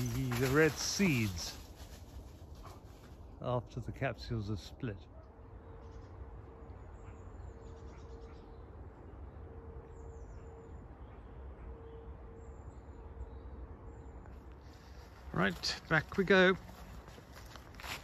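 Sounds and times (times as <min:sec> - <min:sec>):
low outdoor rumble: 0:00.0 - 0:18.0
faint high bird chirps: 0:05.1 - 0:15.3.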